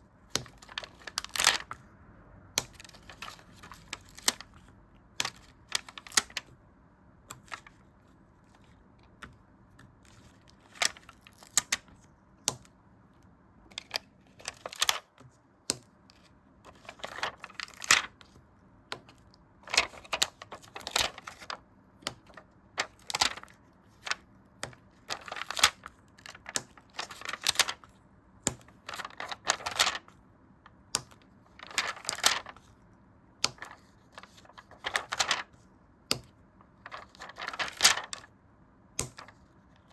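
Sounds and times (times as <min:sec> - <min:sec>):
paper clicks and taps: 0:00.3 - 0:01.8, 0:09.1 - 0:12.8, 0:13.8 - 0:27.8, 0:28.4 - 0:30.1, 0:30.9 - 0:32.7, 0:33.4 - 0:35.4, 0:36.1 - 0:38.3, 0:39.0 - 0:39.5
scratchy paper rustles: 0:13.8 - 0:15.1, 0:16.7 - 0:18.3, 0:19.0 - 0:28.0, 0:28.7 - 0:30.2, 0:31.5 - 0:32.7, 0:33.5 - 0:35.6, 0:36.8 - 0:38.3.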